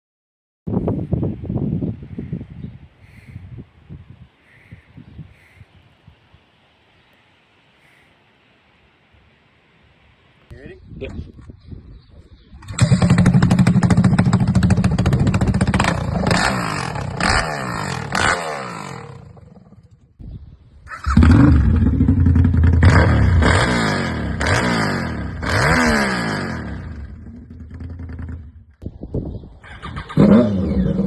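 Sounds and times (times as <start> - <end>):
motorcycle accelerating through gears: 12.6 - 20.0, 20.9 - 28.7, 29.8 - 31.0.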